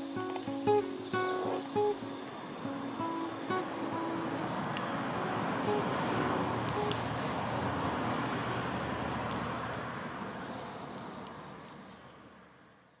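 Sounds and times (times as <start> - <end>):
high-pitched insect-like tone: 0.0 - 7.6
steady rushing noise: 0.0 - 9.1
sharp clicks: 6.6 - 7.1.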